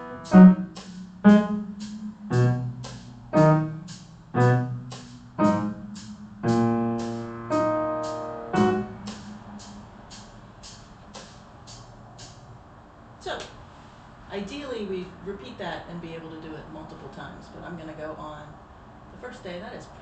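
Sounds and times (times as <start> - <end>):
piano notes and chords: 0.0 - 11.4.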